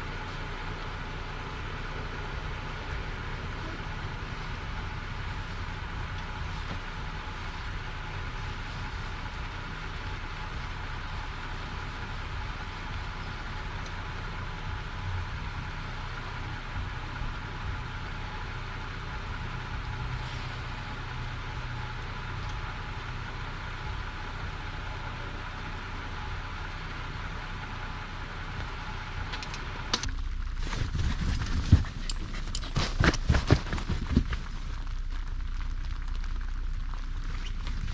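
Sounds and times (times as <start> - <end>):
low steady hum: 0.0 - 37.9
heavy rain falling: 34.1 - 37.9.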